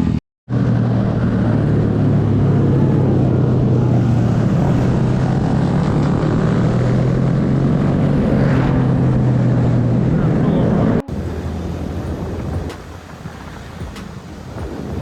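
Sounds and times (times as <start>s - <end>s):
mini bike engine running: 11.0s - 15.0s.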